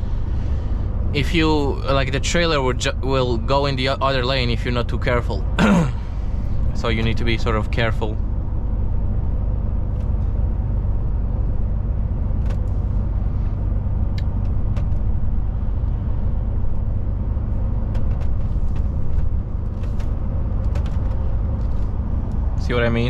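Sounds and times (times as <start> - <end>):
truck engine and road noise: 0.0 - 23.0
light clicks and rattles: 17.8 - 22.5.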